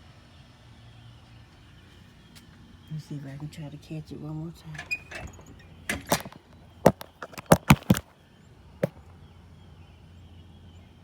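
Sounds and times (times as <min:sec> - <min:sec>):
sharp clicks and knocks: 0:05.9 - 0:08.1.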